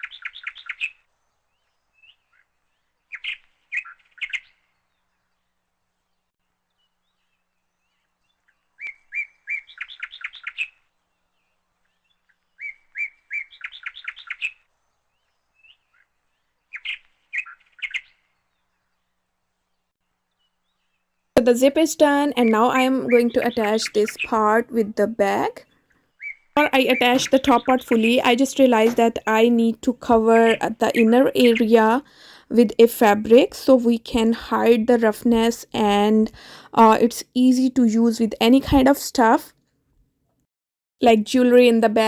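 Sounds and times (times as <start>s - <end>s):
songbird chirping: 21.4s - 25.6s, 26.2s - 39.4s.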